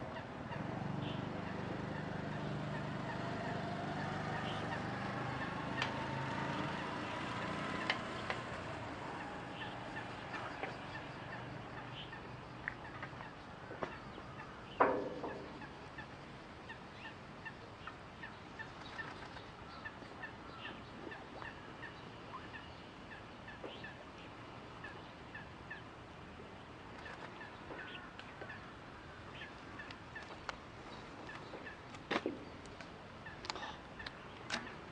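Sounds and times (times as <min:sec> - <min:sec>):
small bird chirping: 0:00.9 - 0:06.0, 0:06.6 - 0:25.9.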